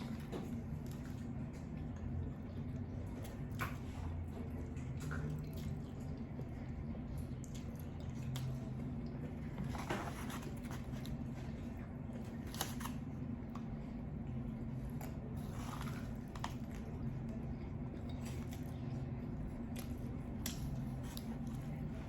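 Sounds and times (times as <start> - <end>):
person chewing noodles: 0.0 - 9.8
steady low hum: 0.0 - 22.0.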